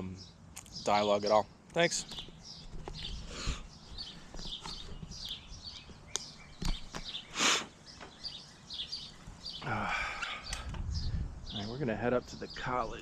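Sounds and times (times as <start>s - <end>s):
birds chirping: 0.0s - 13.0s
sharp clicks: 4.6s - 7.1s.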